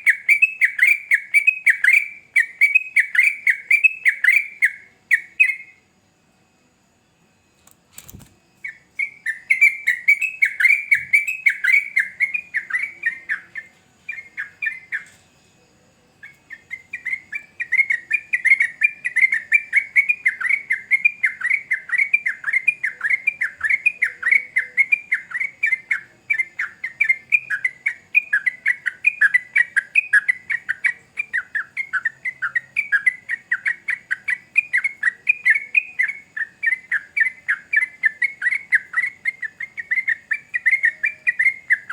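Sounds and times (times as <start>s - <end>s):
bird singing chattering notes: 8.6s - 15.2s, 16.2s - 41.9s.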